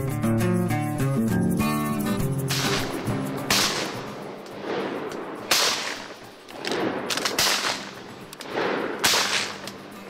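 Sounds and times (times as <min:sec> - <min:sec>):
shotgun blasts: 0:02.5 - 0:09.7.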